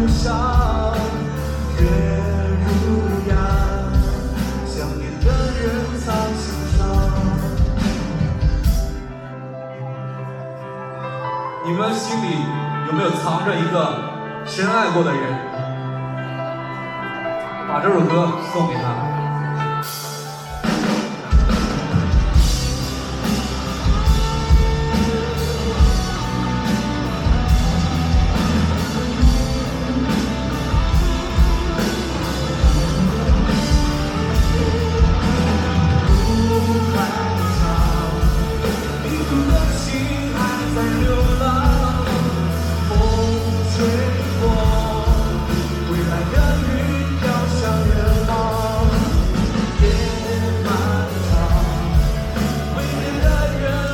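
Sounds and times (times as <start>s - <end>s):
drum kit steady beat: 0.0s - 9.1s, 20.1s - 53.9s
rock band playing live: 0.0s - 53.9s.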